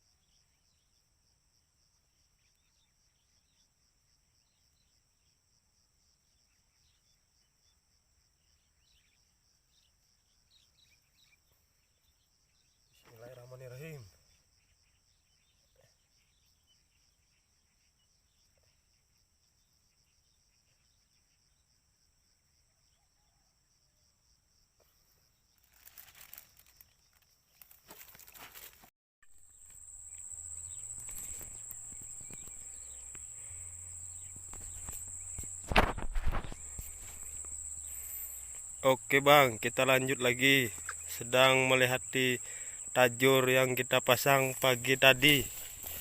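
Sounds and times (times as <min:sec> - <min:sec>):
rustling: 0:25.6 - 0:28.9, 0:29.5 - 0:38.7
high insect trilling: 0:29.3 - 0:46.0.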